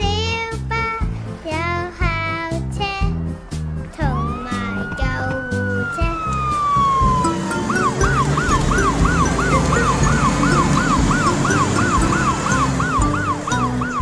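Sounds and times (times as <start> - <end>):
children's song backing: 0.0 - 14.0
siren yelping: 4.1 - 14.0.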